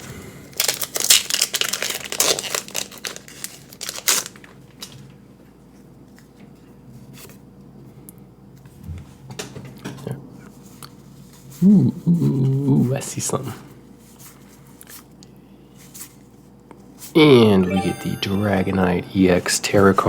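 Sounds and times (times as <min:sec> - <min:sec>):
foil wrapper crinkling and tearing: 0:00.6 - 0:04.8.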